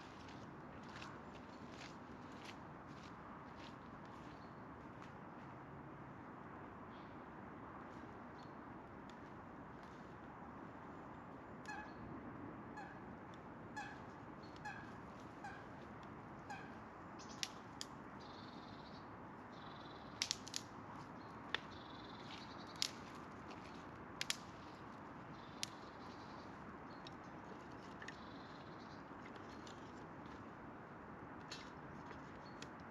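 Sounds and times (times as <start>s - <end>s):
sharp pops and clicks: 20.2s - 20.7s, 24.2s - 24.5s.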